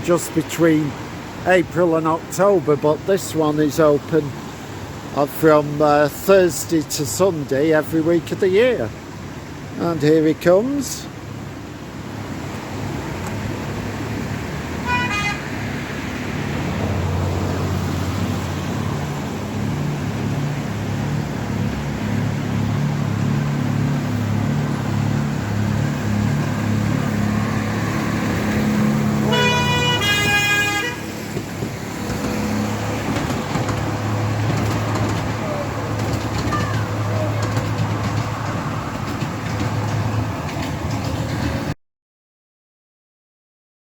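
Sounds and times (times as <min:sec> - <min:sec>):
locomotive horn toots: 0:14.7 - 0:15.7, 0:28.4 - 0:31.4.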